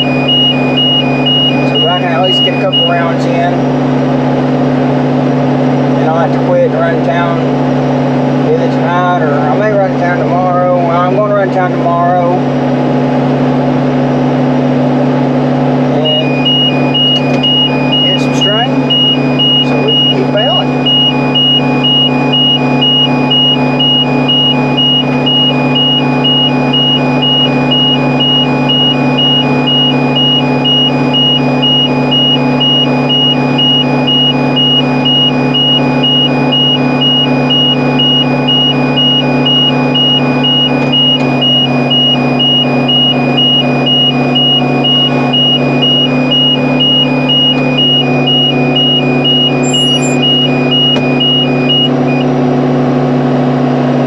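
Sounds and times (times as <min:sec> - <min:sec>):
rapid high electronic beeping: 0:00.0 - 0:03.6, 0:16.0 - 0:52.3
tractor engine running: 0:00.0 - 0:54.0.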